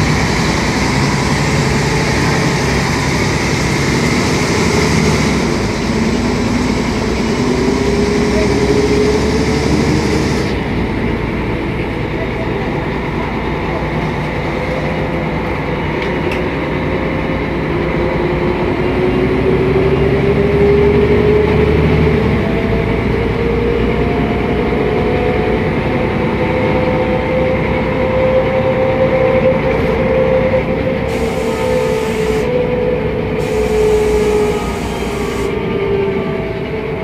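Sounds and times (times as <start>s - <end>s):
bus diesel engine and drivetrain: 0.0s - 37.0s
drivetrain whine rising in pitch: 30.5s - 36.3s.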